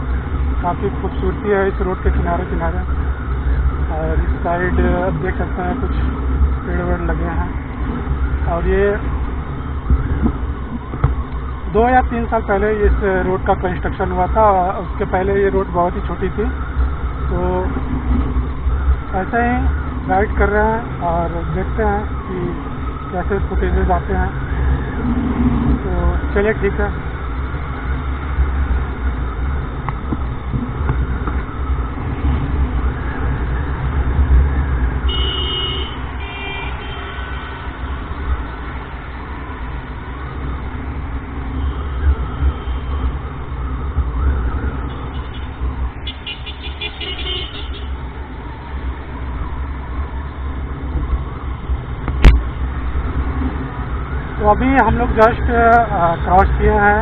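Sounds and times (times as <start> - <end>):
road and traffic noise: 0.0 - 57.0
wind buffeting microphone: 7.5 - 11.7, 24.3 - 26.3, 27.0 - 35.1
vehicle horn: 35.1 - 37.6, 42.6 - 43.0, 45.1 - 48.0
rapid horn beeps: 45.1 - 47.9.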